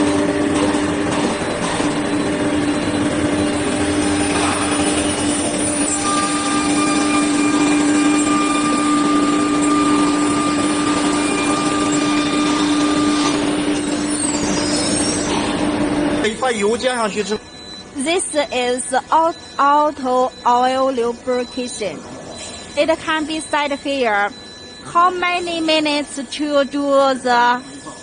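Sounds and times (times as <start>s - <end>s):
high steady whine: 0.0s - 28.0s
router motor drone: 2.4s - 16.1s.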